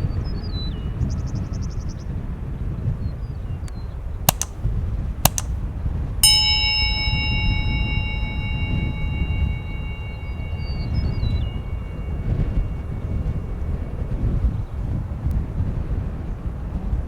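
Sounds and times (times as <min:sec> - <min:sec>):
sharp clicks: 0:04.3 - 0:04.6, 0:05.3 - 0:05.6
metal chime ringing: 0:05.3 - 0:05.5, 0:06.2 - 0:15.0.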